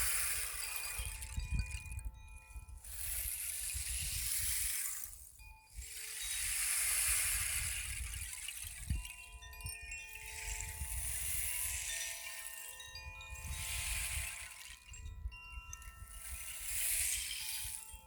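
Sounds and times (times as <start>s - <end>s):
metal chimes ringing: 0.0s - 18.0s
hiss: 2.8s - 5.2s, 5.8s - 7.9s, 16.2s - 17.7s.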